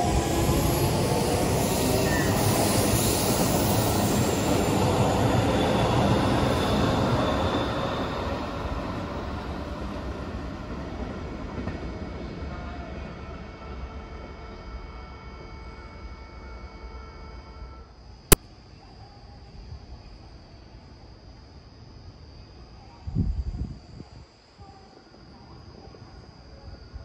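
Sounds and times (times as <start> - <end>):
train passing at speed: 0.0 - 12.5.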